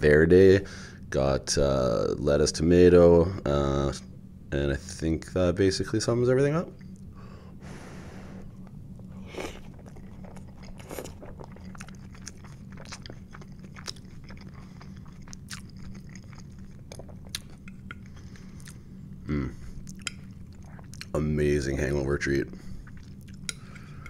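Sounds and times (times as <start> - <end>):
low steady hum: 0.0 - 24.0
wet chewing and crunches: 8.6 - 18.8, 19.8 - 21.2.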